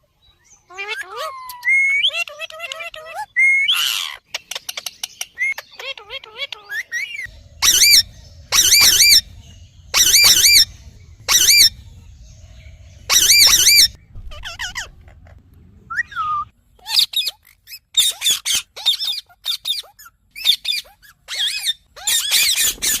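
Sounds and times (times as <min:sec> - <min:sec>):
parakeet squawks: 0:00.7 - 0:09.3, 0:09.9 - 0:11.8, 0:13.0 - 0:15.4, 0:16.8 - 0:23.0
parakeet screeching: 0:03.2 - 0:04.2, 0:05.8 - 0:09.3, 0:09.9 - 0:11.8, 0:13.0 - 0:15.2, 0:16.8 - 0:23.0.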